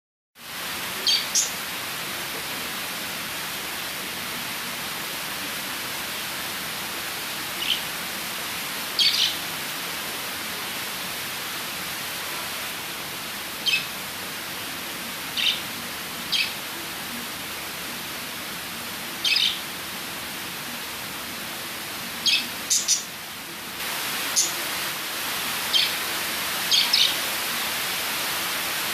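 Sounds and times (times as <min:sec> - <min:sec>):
steady hiss: 0:00.4 - 0:28.9
lovebirds chirping: 0:01.0 - 0:01.6, 0:09.0 - 0:09.4, 0:13.6 - 0:13.9, 0:15.4 - 0:15.6, 0:19.2 - 0:19.6, 0:22.2 - 0:23.1, 0:24.3 - 0:24.6, 0:25.7 - 0:26.0, 0:26.6 - 0:27.2.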